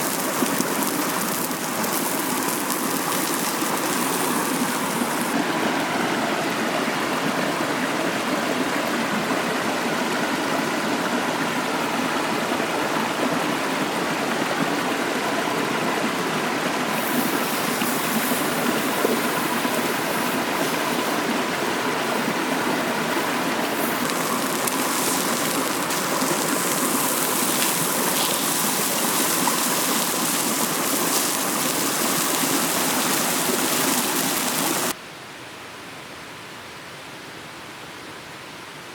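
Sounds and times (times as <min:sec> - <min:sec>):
mountain stream flowing: 0:00.0 - 0:35.0.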